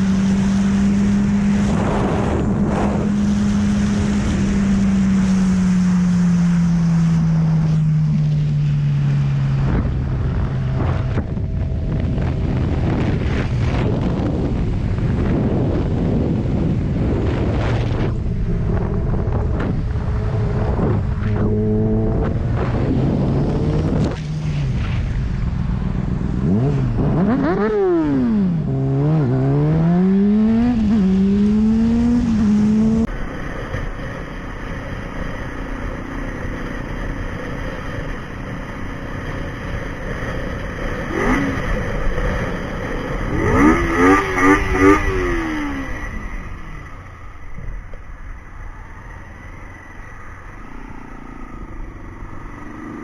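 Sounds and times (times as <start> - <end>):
wind rush: 0.0 - 35.5, 41.0 - 53.0
motorcycle engine: 0.0 - 53.0.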